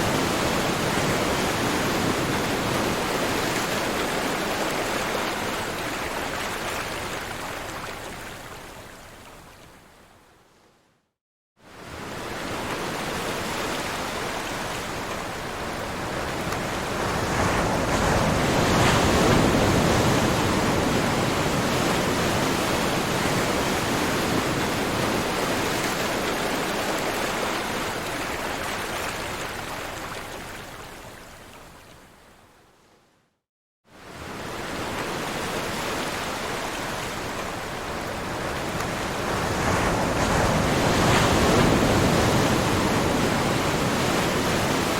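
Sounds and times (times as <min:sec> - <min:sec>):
ocean waves washing in: 0:11.7 - 0:31.2, 0:33.9 - 0:44.9.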